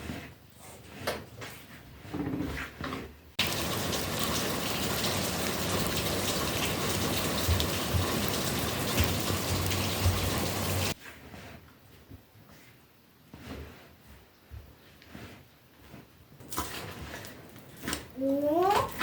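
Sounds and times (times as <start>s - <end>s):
rushing water: 3.4s - 11.0s.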